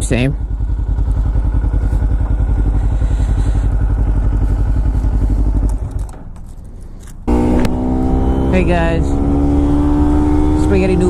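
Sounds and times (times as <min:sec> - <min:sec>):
motorcycle engine idling: 0:00.0 - 0:07.5.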